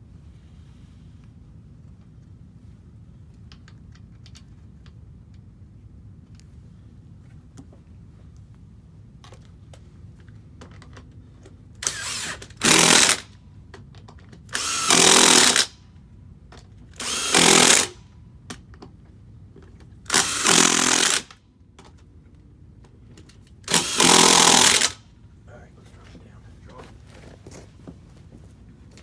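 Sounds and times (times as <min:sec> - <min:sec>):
impact wrench bursts: 0:11.8 - 0:13.4, 0:14.5 - 0:15.8, 0:17.0 - 0:18.0, 0:20.1 - 0:21.4, 0:23.6 - 0:25.0.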